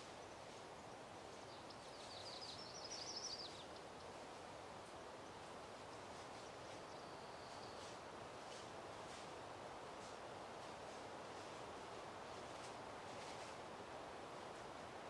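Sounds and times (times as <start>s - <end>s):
faint outdoor hiss: 0.0s - 15.0s
small bird chirping: 1.4s - 3.7s.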